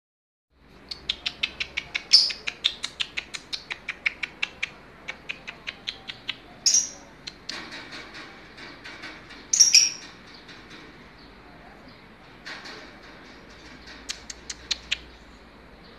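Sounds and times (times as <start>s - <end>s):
bird chirping: 0.7s - 7.5s, 9.3s - 12.1s, 13.5s - 15.9s.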